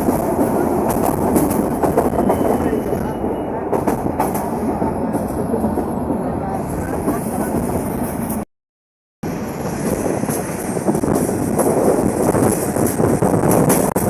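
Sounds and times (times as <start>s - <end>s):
train rumbling on track: 0.0s - 8.5s, 9.2s - 14.0s.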